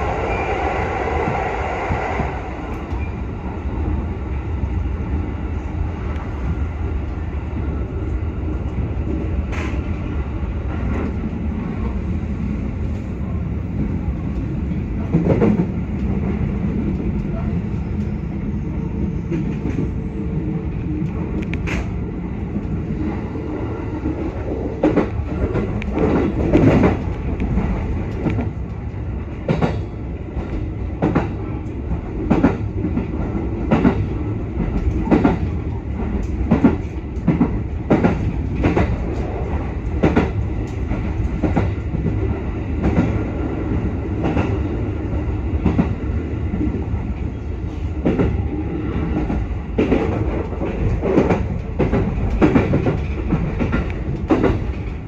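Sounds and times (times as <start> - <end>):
train wheels rumbling: 0.0 - 55.0.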